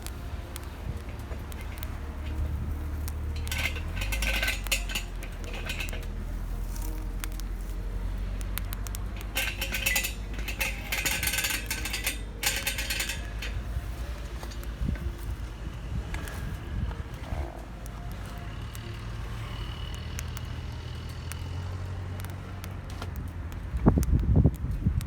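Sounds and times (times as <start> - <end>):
low rumble: 0.0 - 25.0
metal cookware clinking: 0.2 - 19.9.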